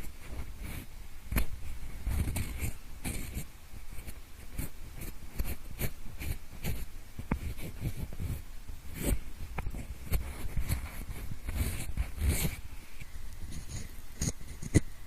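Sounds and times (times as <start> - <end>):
pencil scratching on microphone: 0.0 - 12.6, 13.4 - 14.9.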